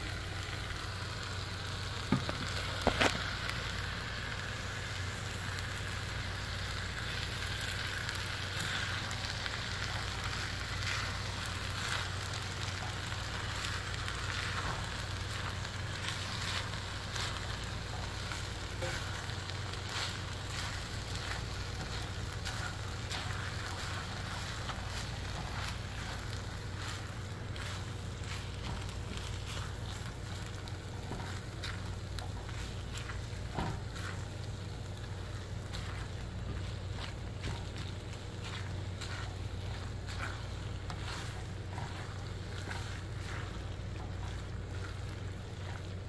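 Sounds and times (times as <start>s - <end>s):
fried rice sizzling in wok: 0.0s - 46.0s
spatula scraping pan: 8.6s - 34.2s, 35.3s - 45.9s.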